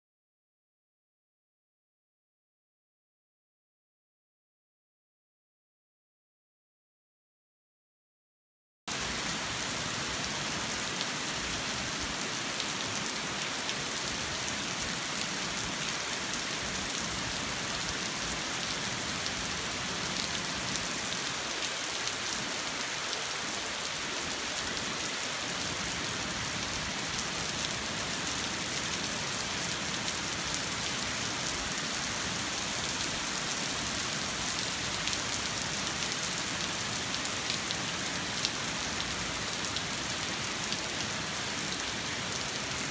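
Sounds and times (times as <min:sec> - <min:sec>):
rain pattering on a street: 0:09.0 - 0:42.9.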